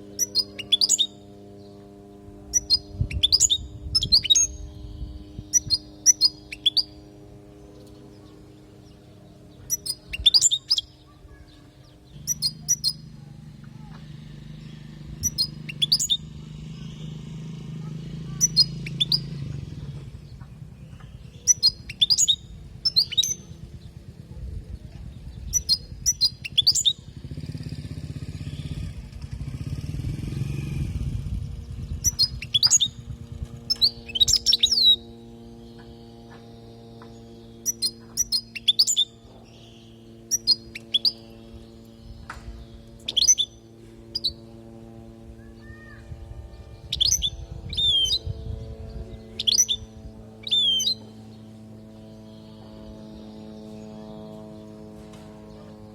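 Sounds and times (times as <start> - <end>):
goldfinch twittering chirps: 0.0 - 1.8, 2.5 - 7.1, 7.8 - 13.1, 13.8 - 17.2, 17.8 - 20.0, 20.8 - 23.6, 25.5 - 27.0, 31.9 - 35.1, 35.7 - 44.4, 46.8 - 48.3, 49.3 - 51.4
steady low hum: 0.0 - 55.9
low rumble: 1.6 - 10.4, 11.0 - 38.4.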